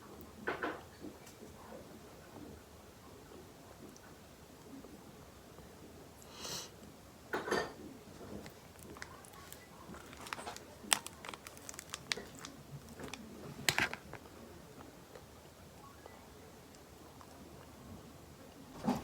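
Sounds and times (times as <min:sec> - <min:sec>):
paper crinkling: 0:08.2 - 0:14.3.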